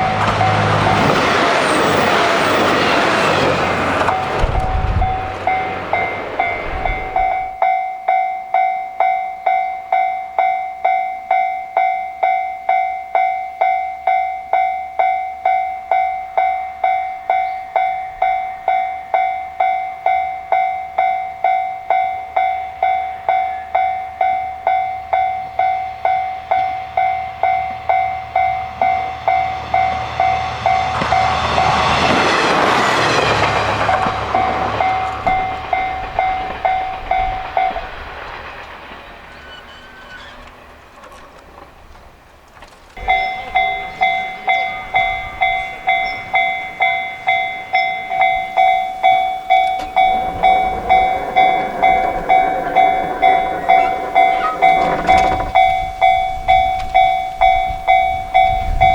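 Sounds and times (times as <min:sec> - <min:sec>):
train passing: 0:00.0 - 0:58.9
low rumble: 0:02.0 - 0:07.6, 0:43.0 - 0:58.9
level crossing electronic bell: 0:43.0 - 0:58.9.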